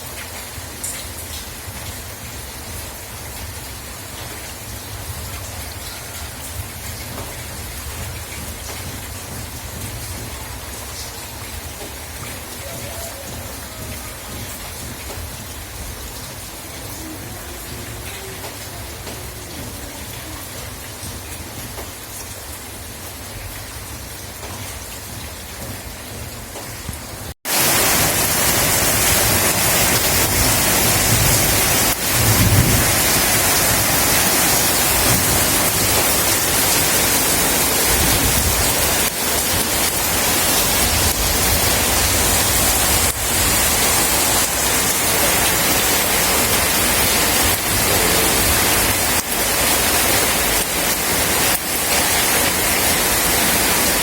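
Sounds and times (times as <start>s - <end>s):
heavy downpour: 0.0s - 54.0s
rain falling: 0.0s - 54.0s
thunder rumbling: 27.5s - 54.0s.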